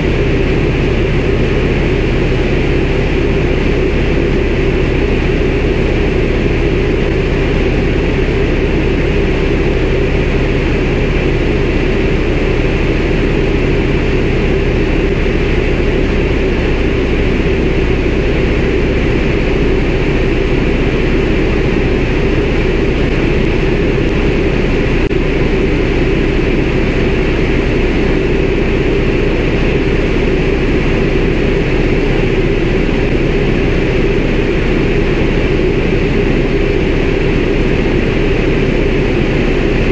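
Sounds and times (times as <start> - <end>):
aircraft radial engine and propeller: 0.0 - 39.9.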